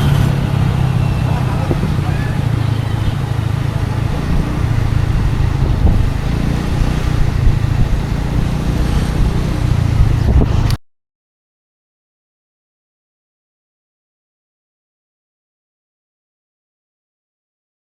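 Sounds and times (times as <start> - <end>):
road noise: 0.0 - 10.8
scooter engine humming: 0.0 - 10.8.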